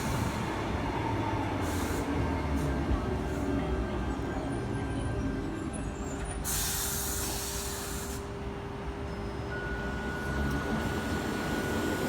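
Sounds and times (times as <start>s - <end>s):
train air system hissing: 6.4s - 8.3s.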